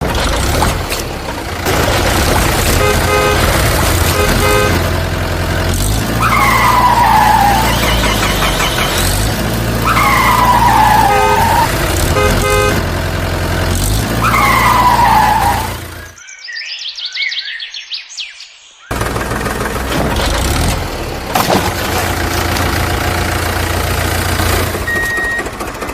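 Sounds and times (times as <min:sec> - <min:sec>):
cartoon tractor engine rumble: 0:00.0 - 0:16.2, 0:18.9 - 0:25.9
short horn toots: 0:02.7 - 0:04.9, 0:11.0 - 0:12.9.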